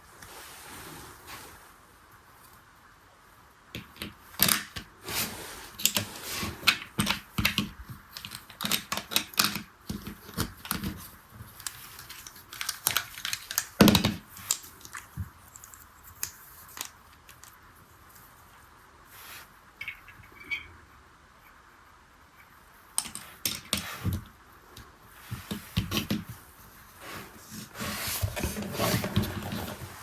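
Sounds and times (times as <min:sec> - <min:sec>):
plastic toy parts clicking: 0:11.6 - 0:17.6.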